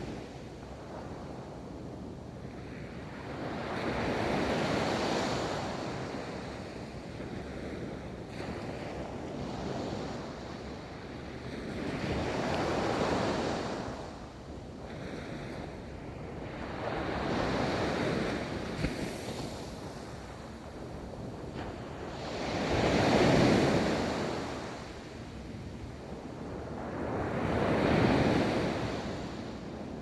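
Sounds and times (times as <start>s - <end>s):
ocean waves breaking on beach: 16.5s - 30.0s.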